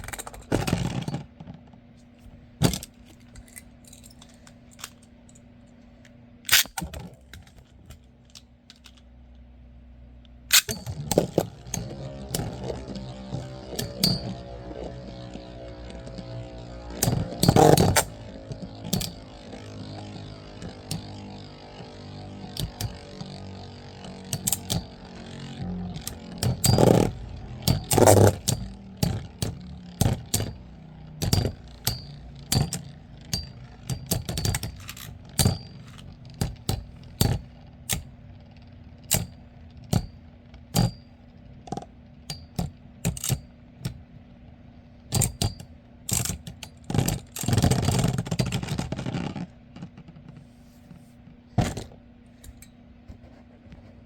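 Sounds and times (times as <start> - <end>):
steady whir of spinning tops: 9.7 - 54.0
metal spinning tops clashing: 10.5 - 14.7.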